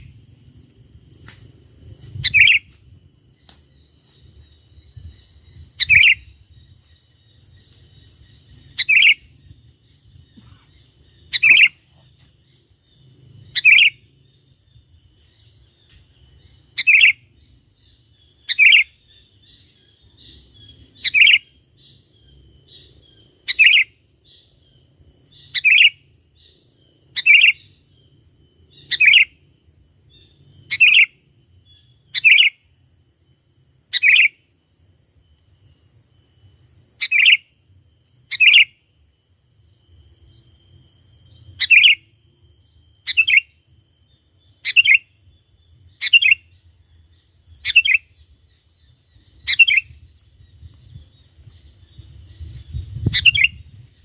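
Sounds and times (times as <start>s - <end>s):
bulbul calling: 2.2s - 2.8s, 4.8s - 6.8s, 8.4s - 12.3s, 13.4s - 14.1s, 37.0s - 37.5s, 38.3s - 38.8s, 41.3s - 42.1s, 43.0s - 43.6s, 44.5s - 45.2s, 45.9s - 46.6s, 47.5s - 48.3s, 48.9s - 53.7s.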